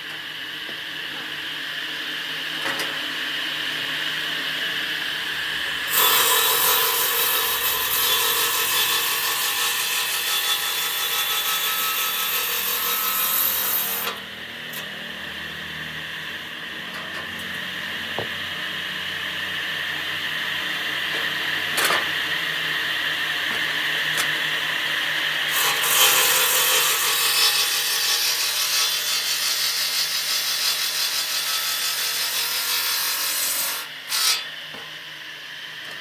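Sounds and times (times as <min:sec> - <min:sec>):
woodworking machine running: 0:00.1 - 0:34.4
blade cutting wood: 0:05.9 - 0:14.2, 0:25.4 - 0:34.5.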